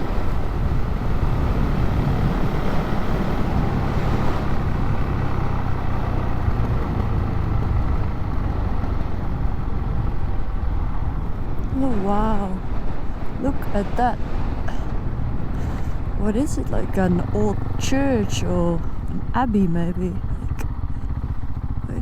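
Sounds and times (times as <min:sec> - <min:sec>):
wind noise on microphone: 0:00.0 - 0:05.3
motorcycle engine running: 0:00.0 - 0:22.0.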